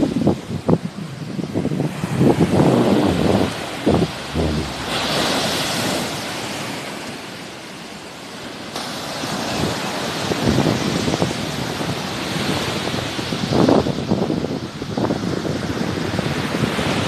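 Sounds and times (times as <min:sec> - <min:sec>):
wind buffeting microphone: 0:00.0 - 0:06.5
sea waves breaking on shore: 0:00.0 - 0:14.0.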